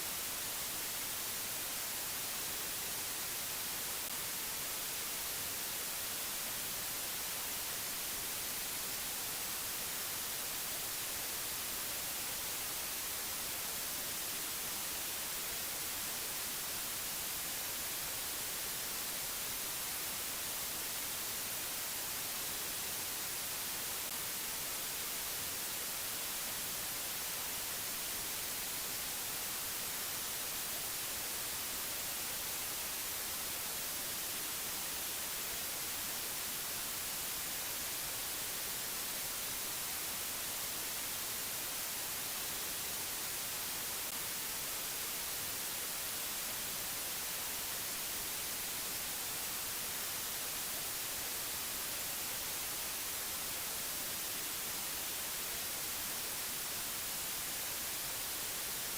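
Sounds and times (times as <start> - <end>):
white noise hiss: 0.0 - 58.9.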